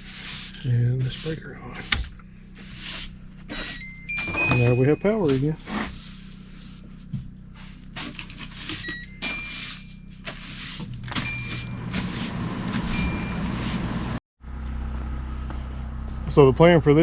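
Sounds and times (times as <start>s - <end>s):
generator engine running: 0.0s - 17.0s
short high tones: 3.5s - 5.6s, 8.8s - 10.2s, 11.2s - 12.2s, 12.8s - 13.9s.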